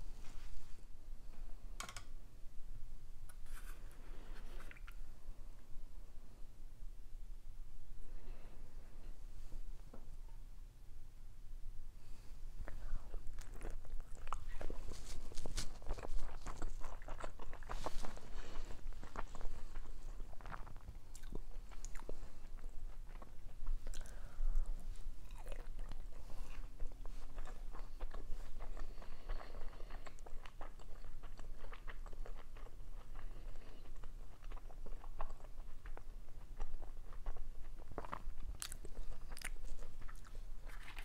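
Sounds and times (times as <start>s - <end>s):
person chewing food: 12.7s - 41.0s
food crunching: 13.0s - 41.0s.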